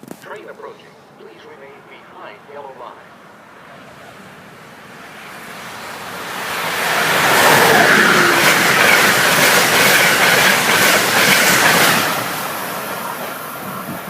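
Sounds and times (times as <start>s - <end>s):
train wheels clicking over rail joints: 6.6s - 14.0s.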